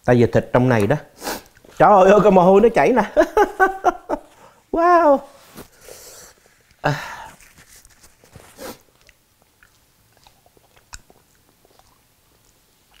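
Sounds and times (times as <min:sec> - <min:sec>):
breathy rustle: 0:05.3 - 0:08.9
person chewing: 0:05.8 - 0:13.0.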